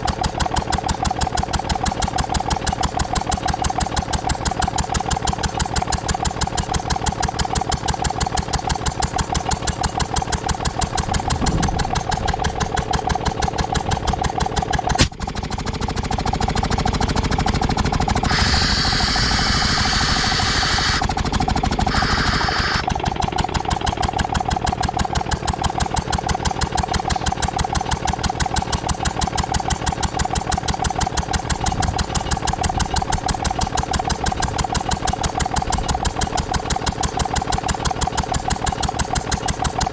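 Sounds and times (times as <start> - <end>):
air compressor engine running: 17.6 - 22.9
air hissing off: 18.2 - 21.2, 21.8 - 22.8
sharp click: 18.3 - 21.1, 21.9 - 22.8.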